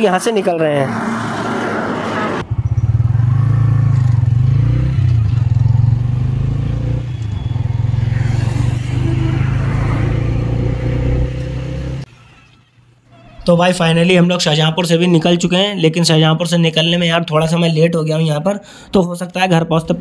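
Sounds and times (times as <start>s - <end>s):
motorcycle engine running: 2.4s - 12.0s.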